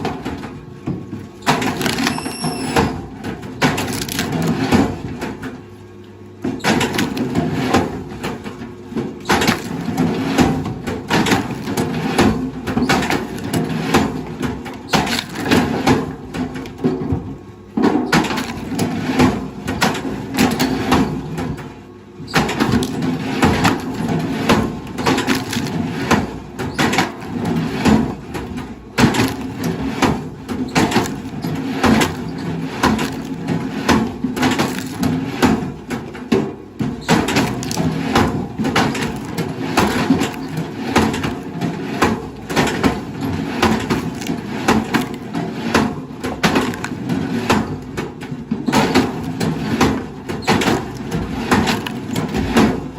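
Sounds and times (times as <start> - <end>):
wood cracking and splintering: 1.5 - 2.2, 3.6 - 4.6, 9.3 - 15.9, 22.4 - 36.2, 37.0 - 47.9, 48.6 - 52.9
heavy machine engine running: 1.8 - 3.2.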